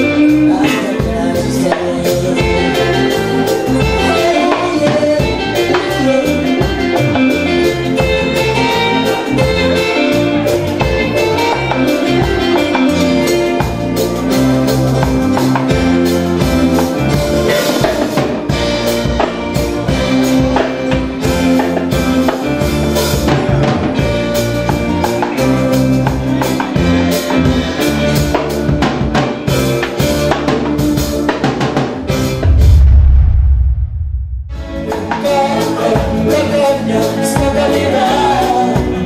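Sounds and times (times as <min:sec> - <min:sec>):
bass lines: 0:00.0 - 0:17.6, 0:31.2 - 0:35.6
drum kit: 0:00.0 - 0:36.5.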